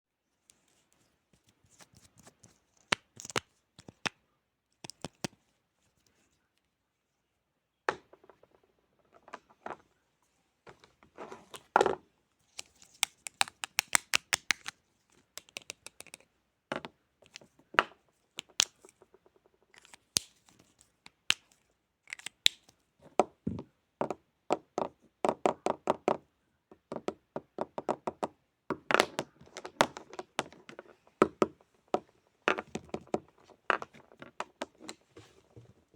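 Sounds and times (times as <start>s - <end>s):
clicks and taps: 4.8s - 5.4s, 12.9s - 14.8s, 15.4s - 19.2s.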